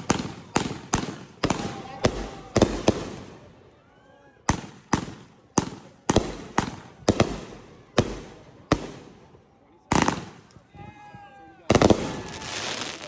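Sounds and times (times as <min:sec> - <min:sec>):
fireworks bangs: 0:00.0 - 0:03.5, 0:04.5 - 0:09.3, 0:09.9 - 0:10.6, 0:11.7 - 0:13.0.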